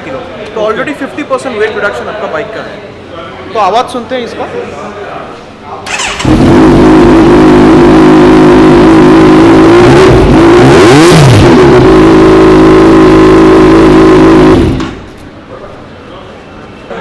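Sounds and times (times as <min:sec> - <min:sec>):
motorcycle engine idling and revving: 0:05.9 - 0:15.2.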